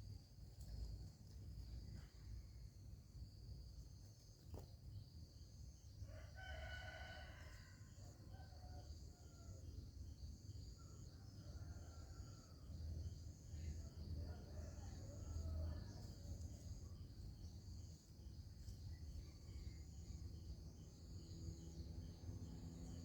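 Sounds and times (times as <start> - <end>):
insects trilling: 0.1 - 23.0
rooster crowing: 6.1 - 9.6.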